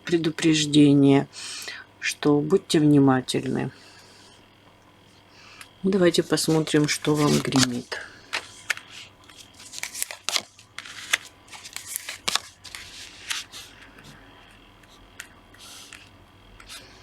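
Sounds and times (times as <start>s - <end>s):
cards rustling: 6.3s - 17.0s
cards snapping: 6.5s - 13.8s.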